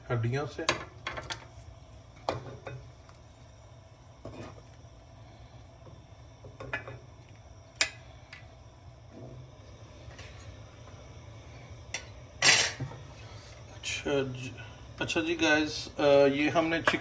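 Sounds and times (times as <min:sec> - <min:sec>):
low steady hum: 0:00.0 - 0:17.0
utensils clinking against a pot: 0:11.9 - 0:13.0, 0:16.7 - 0:17.0.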